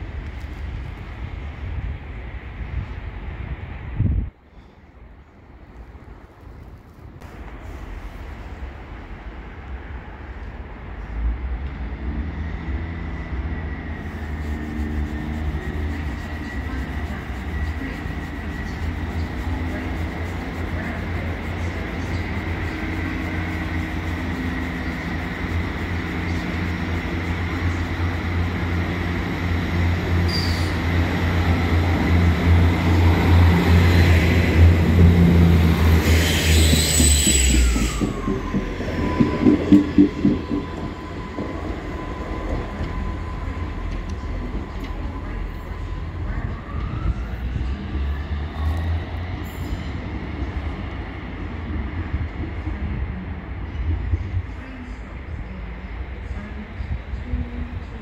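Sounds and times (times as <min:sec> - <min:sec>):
diesel locomotive engine rumble: 0:00.0 - 0:58.0
high whine: 0:12.3 - 0:49.0.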